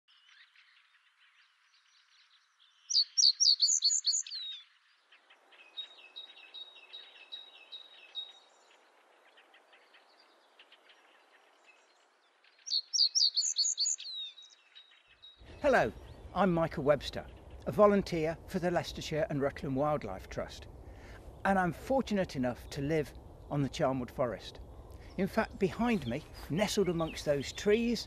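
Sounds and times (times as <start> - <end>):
other birds chirping: 0.1 - 28.0
bird singing rapid high notes: 2.8 - 4.6, 12.6 - 19.0, 21.3 - 28.0.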